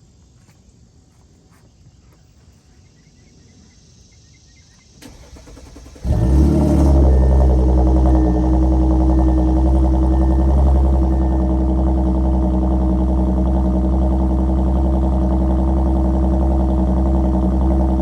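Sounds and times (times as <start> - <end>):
car engine loud idle: 5.0 - 18.0
engine cranking: 5.0 - 18.0.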